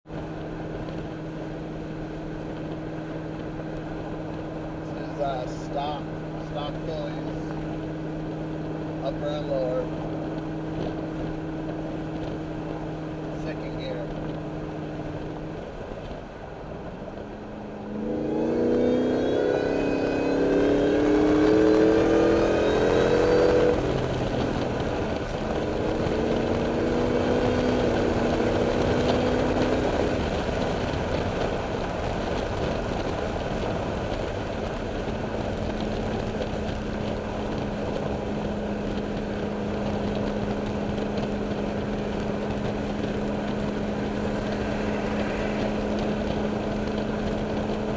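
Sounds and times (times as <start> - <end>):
supercharged engine revving: 17.8 - 31.8.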